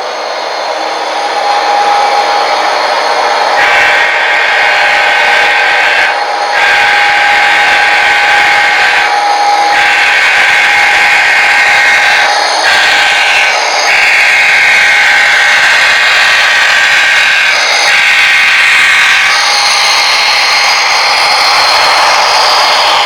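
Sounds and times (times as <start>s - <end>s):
model train motor whine: 0.0s - 23.0s.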